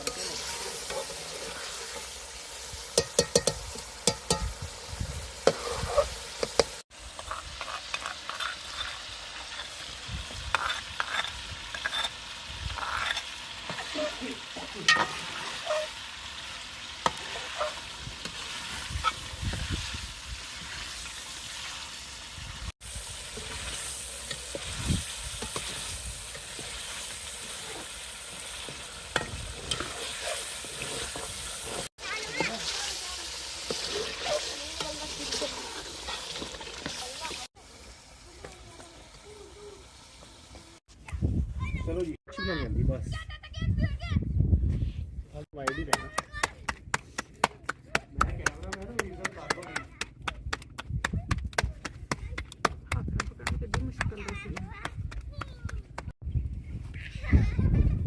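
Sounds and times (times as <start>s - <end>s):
food sizzling in a pan: 0.0s - 40.9s
spoon scraping metal pan: 2.9s - 4.6s, 5.4s - 9.8s, 10.5s - 16.1s, 17.0s - 19.2s, 28.6s - 37.5s.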